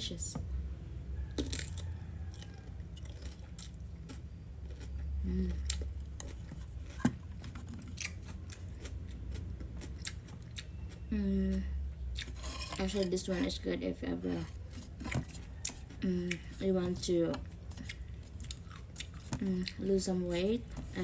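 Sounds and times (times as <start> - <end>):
steady low hum: 0.0 - 21.0
cucumber being chewed: 1.3 - 13.1, 14.3 - 16.6, 17.4 - 19.9
person humming: 5.2 - 5.7.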